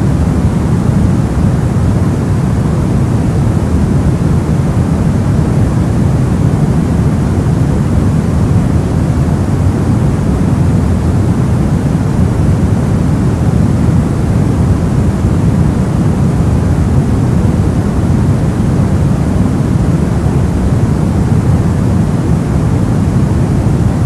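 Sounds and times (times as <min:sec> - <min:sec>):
low steady rushing noise: 0:00.0 - 0:24.0.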